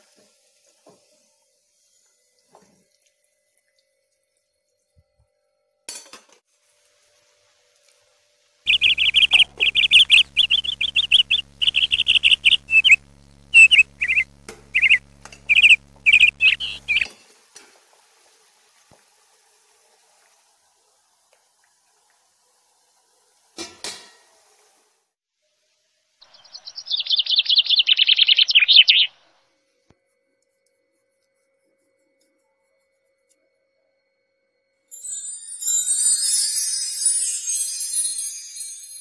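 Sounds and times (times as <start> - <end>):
faint steady hum: 6.7 - 17.2
bird chirping: 8.7 - 17.1, 26.2 - 29.2.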